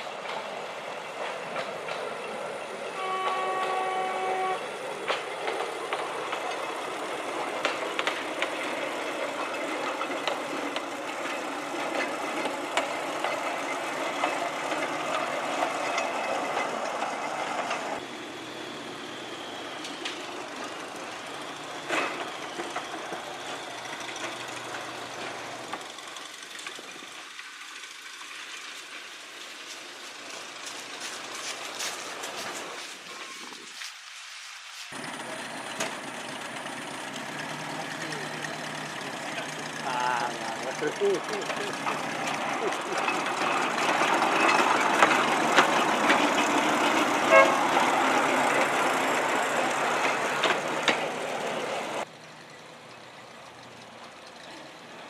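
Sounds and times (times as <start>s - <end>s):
wheels rattling and clicking: 0.0s - 3.8s, 4.8s - 55.0s
rail motor car running on track: 0.0s - 33.9s, 34.6s - 55.0s
horn toot: 47.3s - 47.6s.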